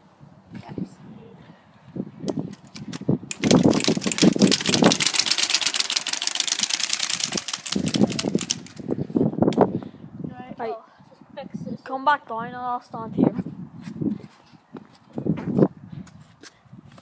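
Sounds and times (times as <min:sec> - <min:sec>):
playing cards flapping in bicycle spokes: 0:02.3 - 0:09.6.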